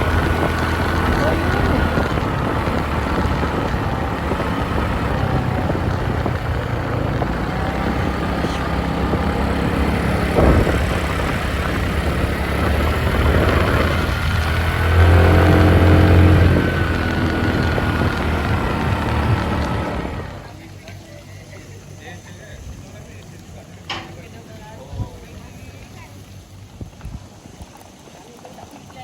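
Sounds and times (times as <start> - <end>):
road and wind noise: 0.0 - 20.6
motorbike engine running: 0.0 - 20.8.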